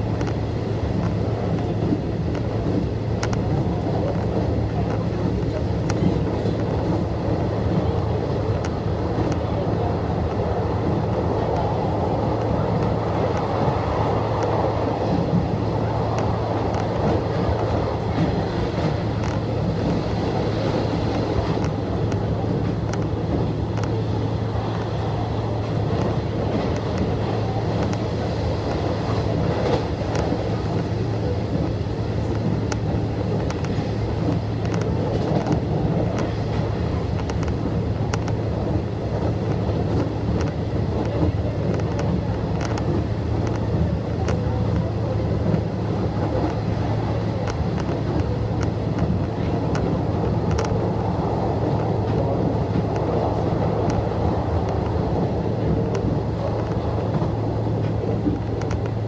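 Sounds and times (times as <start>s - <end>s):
train wheels rumbling on rail: 0.0s - 59.0s
faint clicks: 1.0s - 7.0s, 20.7s - 24.0s, 28.7s - 38.4s, 39.2s - 50.8s, 51.6s - 59.0s.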